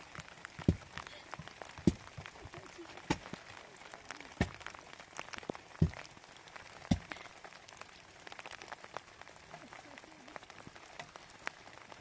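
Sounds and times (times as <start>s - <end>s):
rain pattering: 0.0s - 12.0s
heavy knocks: 0.6s - 2.3s, 5.8s - 6.1s, 6.9s - 7.2s.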